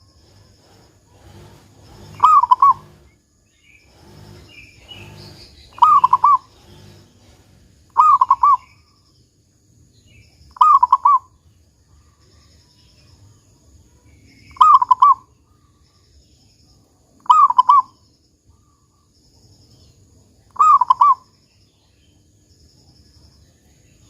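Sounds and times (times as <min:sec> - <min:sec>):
dove cooing: 0:00.0 - 0:03.1, 0:03.9 - 0:08.8, 0:10.6 - 0:11.4, 0:14.5 - 0:15.3, 0:17.2 - 0:18.0, 0:20.5 - 0:21.3.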